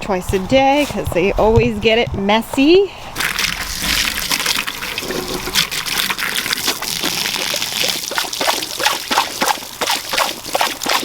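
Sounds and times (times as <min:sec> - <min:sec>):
hose water splashing into container: 0:03.2 - 0:11.0.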